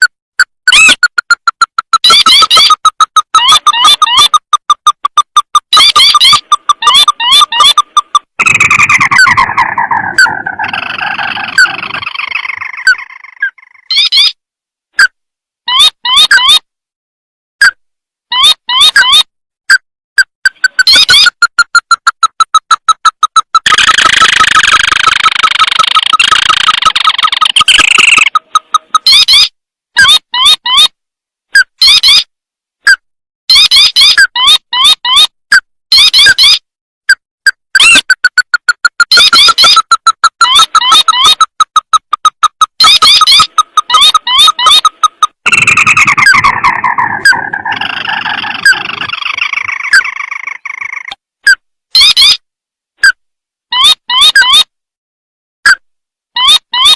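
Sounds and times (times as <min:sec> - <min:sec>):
bird churring trill: 0:05.6 - 0:14.3, 0:23.6 - 0:29.4, 0:42.8 - 0:51.1
bird calls with rising whistles: 0:05.7 - 0:14.4, 0:42.8 - 0:51.2.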